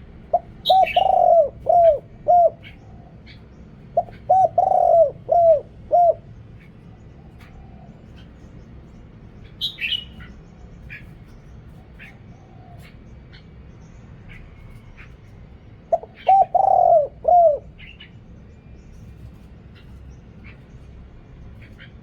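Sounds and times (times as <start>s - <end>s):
dove cooing: 0.0s - 8.4s, 15.0s - 18.2s
small bird chirping: 6.5s - 12.2s.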